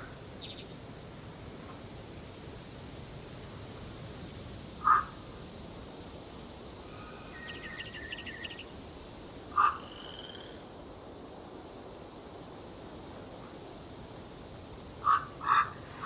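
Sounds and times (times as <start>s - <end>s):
faint bird twittering: 0.0s - 0.8s, 6.8s - 8.7s
background hiss: 0.0s - 16.0s
loud bird calls: 4.8s - 5.1s, 6.9s - 8.7s, 9.5s - 10.5s, 15.0s - 16.0s.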